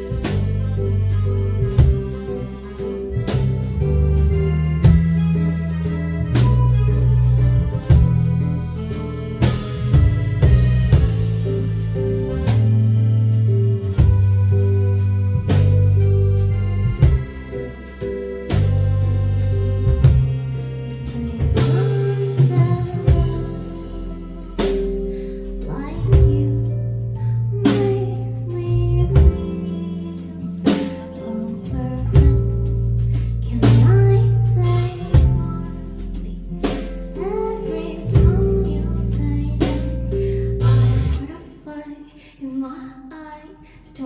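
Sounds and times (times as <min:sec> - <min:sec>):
guitar: 0:00.0 - 0:41.6
bass: 0:00.0 - 0:44.0
woman singing: 0:20.6 - 0:44.0
person singing: 0:20.9 - 0:26.8.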